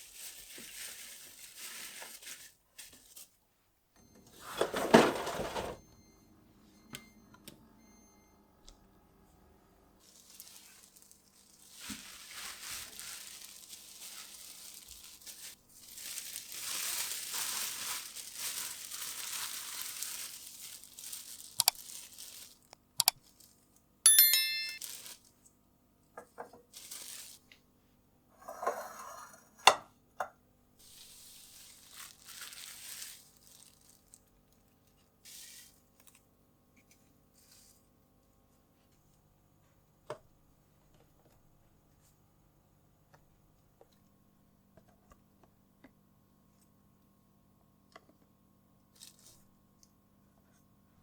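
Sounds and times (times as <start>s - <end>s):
plastic bags rustling: 0.0s - 3.4s, 4.4s - 5.8s, 10.0s - 23.7s, 24.5s - 25.4s, 26.7s - 27.6s, 30.8s - 36.2s, 48.9s - 49.5s
glass and containers clinking: 24.1s - 25.1s.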